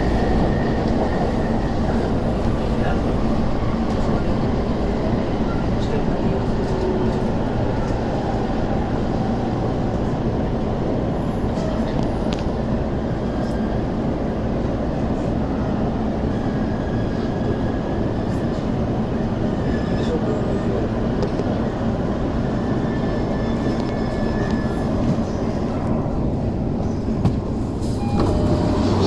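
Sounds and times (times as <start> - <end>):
electric train rumbling: 0.0 - 29.0.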